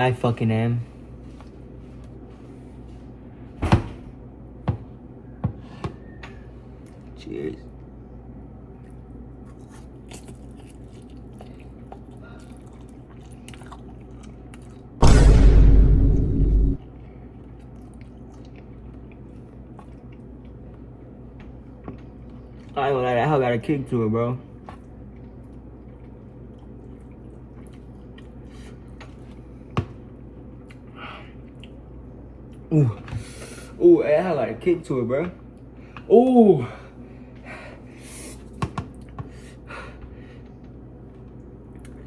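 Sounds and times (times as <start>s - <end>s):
steady low hum: 0.0s - 42.0s
person chewing noodles: 8.8s - 15.0s, 17.4s - 22.8s, 24.8s - 29.6s, 30.6s - 32.7s
sharp knock: 15.0s - 16.8s.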